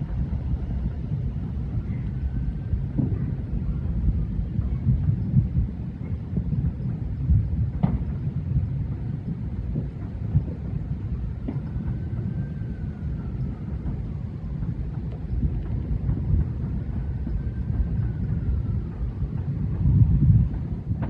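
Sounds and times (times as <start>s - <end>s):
distant fireworks rumbling: 0.0s - 21.0s
sharp firework pops: 2.9s - 3.4s, 6.8s - 8.4s, 11.4s - 12.0s.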